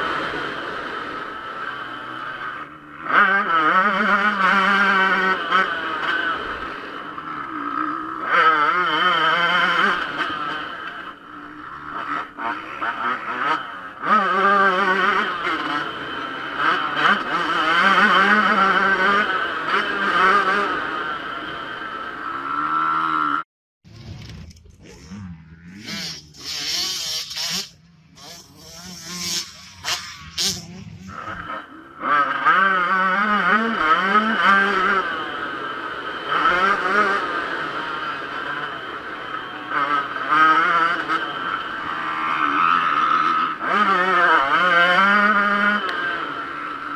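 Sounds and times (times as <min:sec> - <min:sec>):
two-stroke engine revving hard: 0:00.0 - 0:46.9.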